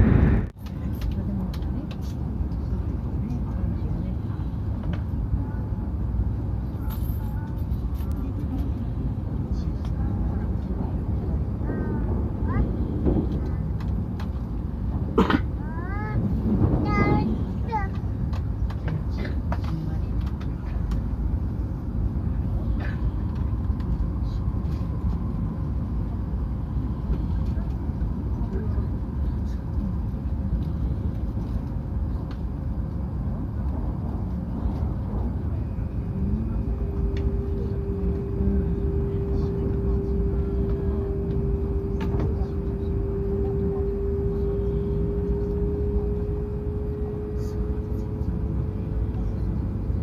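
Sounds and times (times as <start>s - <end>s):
train low rumble: 0.0s - 50.0s
faint whine: 34.5s - 50.0s.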